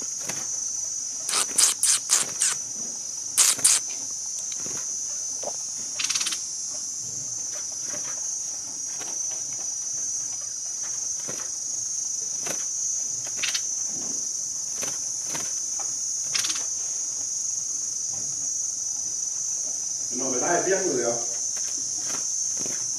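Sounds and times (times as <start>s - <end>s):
insects droning: 0.0s - 22.9s
short sharp chirps: 1.3s - 2.6s, 3.4s - 3.8s.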